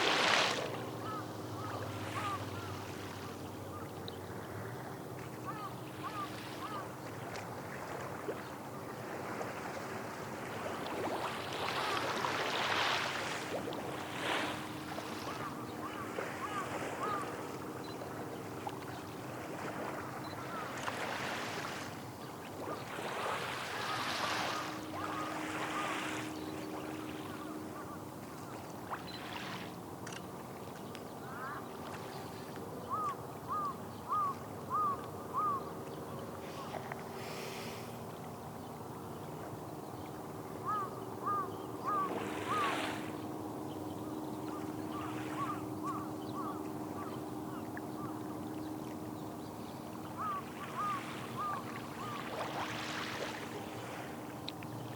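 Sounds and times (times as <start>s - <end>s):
small waves washing on shore: 0.0s - 54.9s
bird calling repeated notes: 32.9s - 35.7s, 40.6s - 42.8s, 44.0s - 48.2s, 50.2s - 52.3s.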